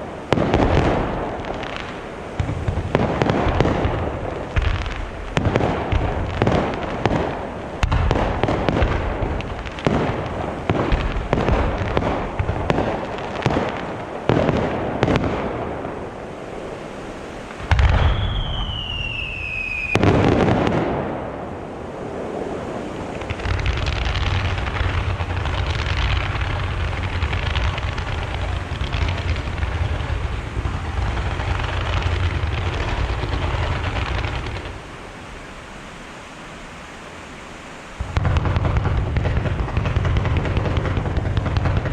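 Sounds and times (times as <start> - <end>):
fireworks crackling: 0.0 - 41.9
firework falling whistle: 17.5 - 20.6.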